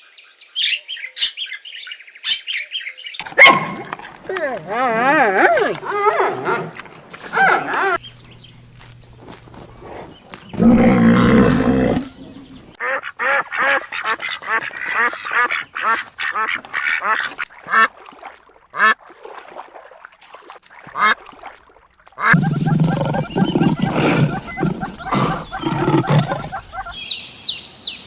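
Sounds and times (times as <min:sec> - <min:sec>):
ducks quacking: 0:12.0 - 0:18.0, 0:18.7 - 0:19.0, 0:20.8 - 0:21.3, 0:22.1 - 0:27.0.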